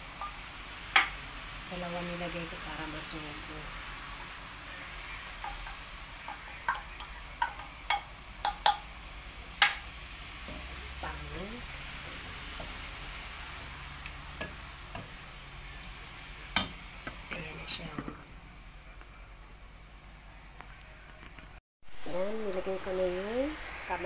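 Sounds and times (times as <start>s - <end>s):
food sizzling in a pot: 0.0s - 24.0s
knocks against metal pot: 5.4s - 8.8s.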